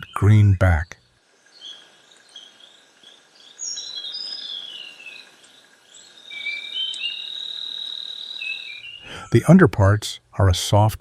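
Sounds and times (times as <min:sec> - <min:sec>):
high insect-like tone: 0:00.0 - 0:08.9
birds whistling: 0:03.5 - 0:05.2, 0:06.0 - 0:09.2.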